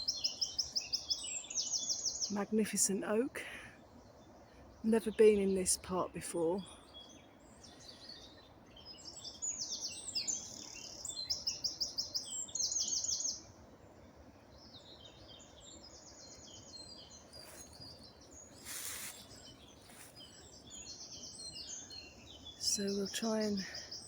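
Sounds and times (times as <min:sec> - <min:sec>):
birds chirping and trilling: 0:00.0 - 0:24.0
brief hiss of noise: 0:18.6 - 0:19.4.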